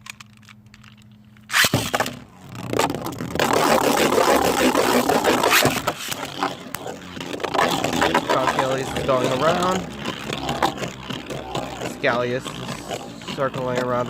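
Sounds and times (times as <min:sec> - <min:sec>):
spinning tops scraping and knocking: 0:00.0 - 0:14.0
spinning top launcher burst: 0:01.5 - 0:13.3.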